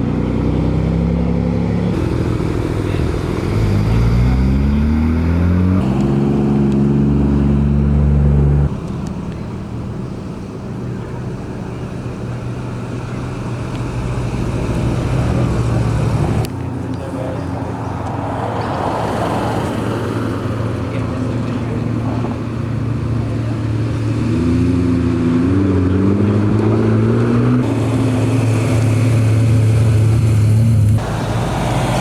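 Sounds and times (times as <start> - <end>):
car engine accelerating: 0.0 - 32.0
quiet rumble of engines: 0.0 - 32.0.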